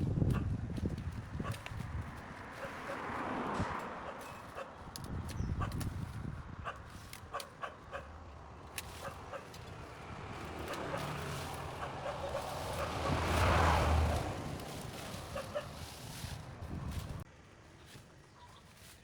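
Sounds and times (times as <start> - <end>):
vehicle passing by: 1.0 - 17.3.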